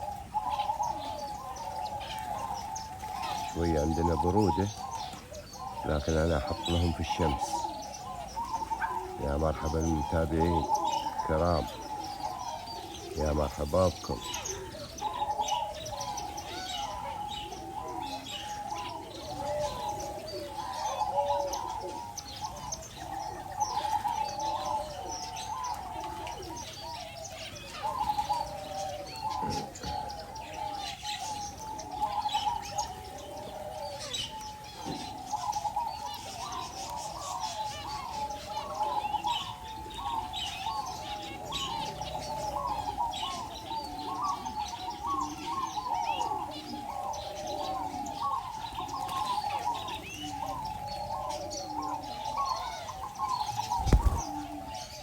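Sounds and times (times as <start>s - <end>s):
doves cooing: 0.0s - 55.0s
small birds chirping: 0.0s - 55.0s.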